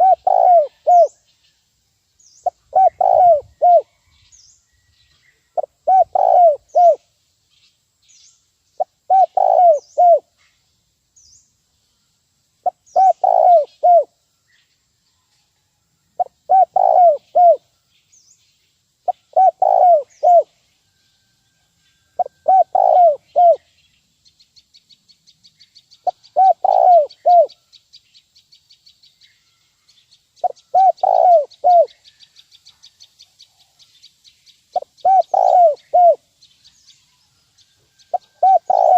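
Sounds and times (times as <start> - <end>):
dove cooing: 0.0 - 1.2, 2.4 - 3.9, 5.6 - 7.0, 8.8 - 10.3, 12.6 - 14.1, 16.2 - 17.6, 19.1 - 20.5, 22.2 - 23.7, 26.0 - 27.6, 30.4 - 31.9, 34.8 - 36.2, 38.1 - 38.9
faint high bird chirps: 0.0 - 38.9.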